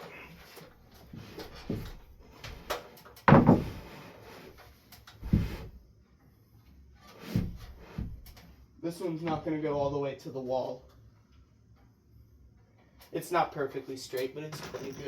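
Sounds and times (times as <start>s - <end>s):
shelf knocking and thudding: 3.2s - 4.0s, 5.2s - 5.7s, 7.2s - 8.3s.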